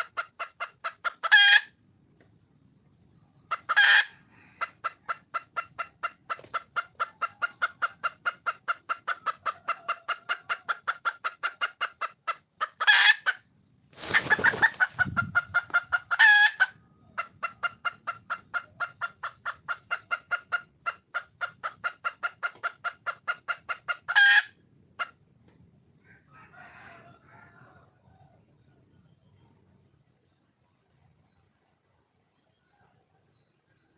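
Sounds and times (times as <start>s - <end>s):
hen clucking: 0.0s - 1.9s, 3.3s - 25.3s.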